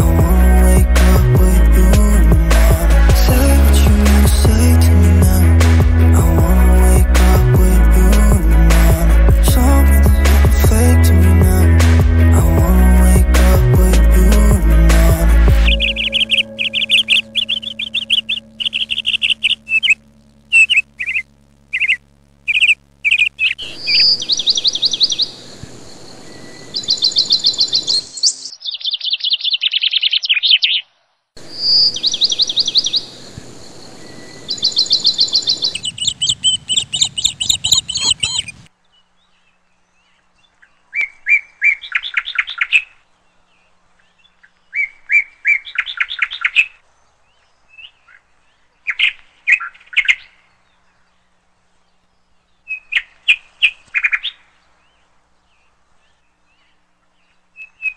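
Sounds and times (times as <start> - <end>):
songbirds chirping and trilling: 0.0 - 57.9
steady hiss: 16.9 - 28.4, 31.4 - 38.7.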